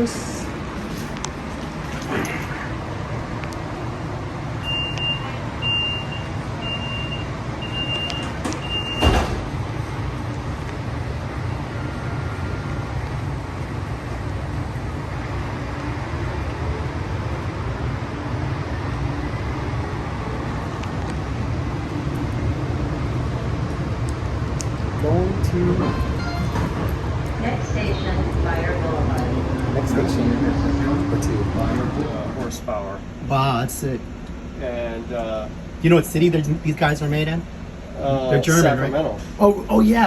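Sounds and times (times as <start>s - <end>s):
tram running with low rumble: 0.0s - 40.0s
short warning beeps: 4.6s - 9.1s, 25.7s - 27.1s
doors shutting with a thud: 8.2s - 9.6s, 25.8s - 27.1s.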